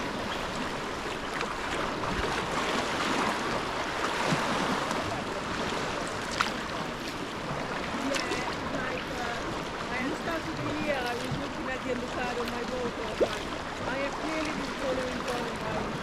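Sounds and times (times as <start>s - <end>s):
water splashing around kayak: 0.0s - 16.0s.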